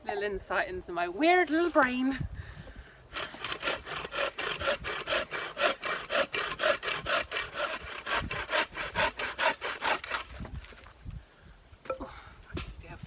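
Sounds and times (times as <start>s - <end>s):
hand saw cutting tree trunk: 3.1s - 10.9s.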